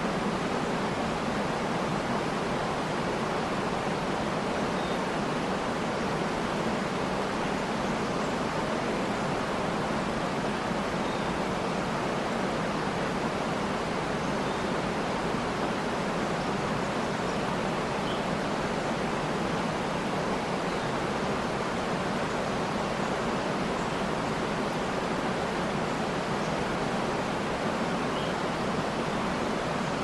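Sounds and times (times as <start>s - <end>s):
waterfall rushing: 0.0s - 30.0s
faint bird chirps: 4.7s - 5.1s, 11.0s - 11.4s, 14.2s - 14.8s, 17.2s - 18.3s, 28.1s - 30.0s.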